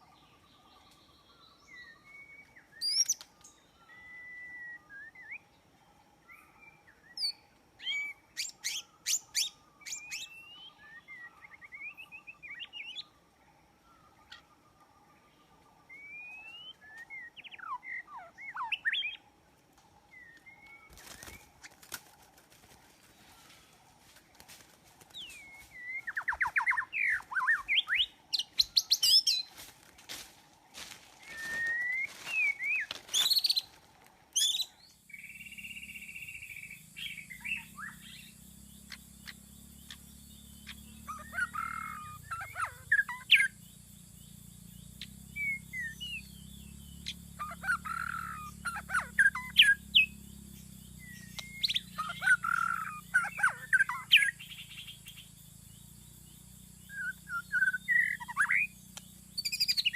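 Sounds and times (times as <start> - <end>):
bird singing whistles and trills: 1.0 - 5.6, 6.3 - 13.1, 15.9 - 19.2, 25.2 - 29.5, 31.2 - 33.7, 34.4 - 59.9
low steady hum: 9.6 - 59.9.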